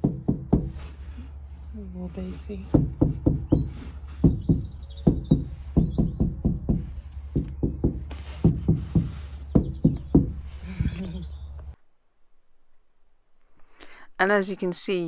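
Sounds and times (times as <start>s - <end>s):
dull knocking on metal panel: 0.0s - 1.1s, 2.6s - 11.0s.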